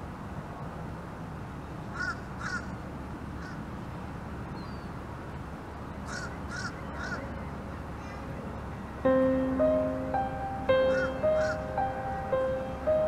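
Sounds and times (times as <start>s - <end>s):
low background hiss: 0.0s - 13.0s
bird calls: 6.1s - 8.3s, 10.8s - 12.4s.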